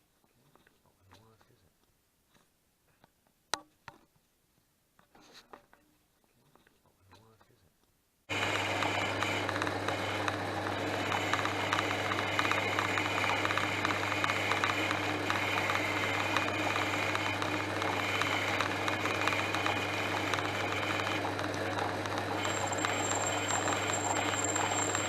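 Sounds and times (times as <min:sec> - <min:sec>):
lathe motor hum with whine: 0:08.3 - 0:25.0.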